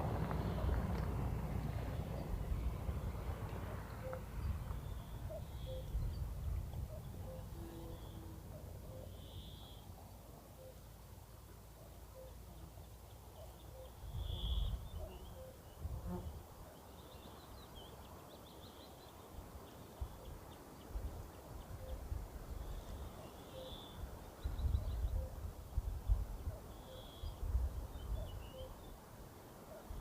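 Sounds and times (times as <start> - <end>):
high chirping calls and trills: 4.0 - 9.9.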